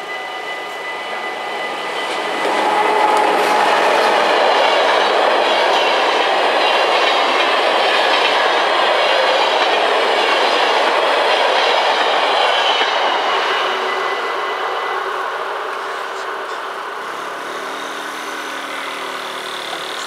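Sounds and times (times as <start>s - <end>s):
train wheels rushing on rail: 0.0s - 20.0s
clickety-clack over rail joints: 2.0s - 13.8s.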